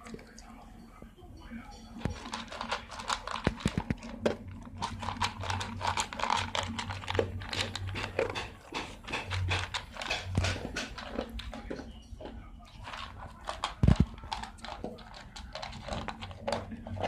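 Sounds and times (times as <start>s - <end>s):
dog chewing food: 1.9s - 17.0s.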